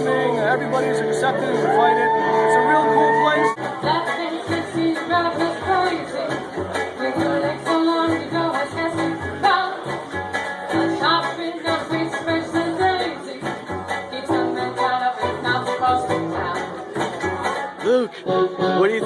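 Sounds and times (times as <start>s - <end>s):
singer's voice: 0.0s - 10.1s
bass line: 0.0s - 18.9s.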